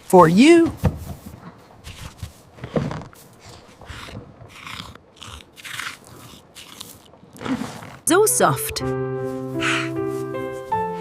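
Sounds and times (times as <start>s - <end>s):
animal crunching and chewing food: 1.4s - 8.0s.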